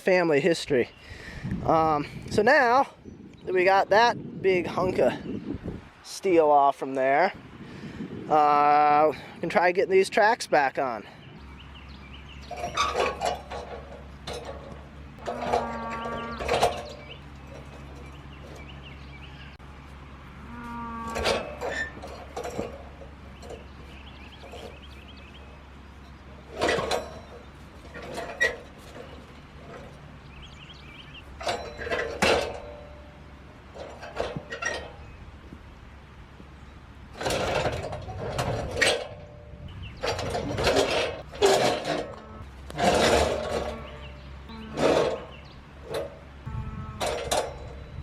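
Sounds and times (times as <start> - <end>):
metal track clanks and knocks: 12.4 - 19.0, 21.1 - 35.1, 37.1 - 48.0.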